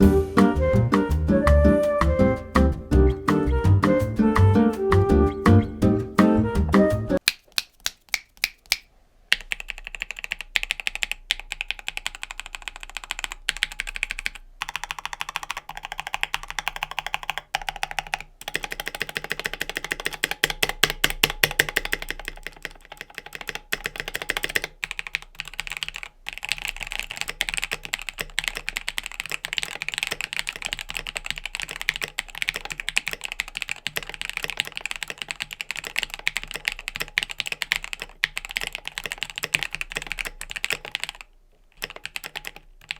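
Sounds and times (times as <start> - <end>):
typing on mechanical keyboard: 9.3 - 42.9.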